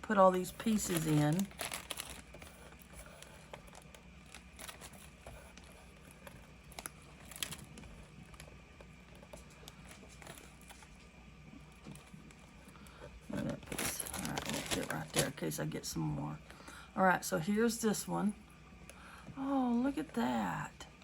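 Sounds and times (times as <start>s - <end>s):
bag rustling: 0.7s - 2.4s, 13.4s - 15.4s.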